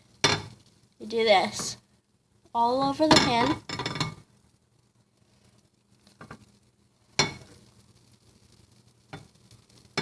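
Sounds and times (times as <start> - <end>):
utensil clinking against frying pan: 7.2 - 7.5.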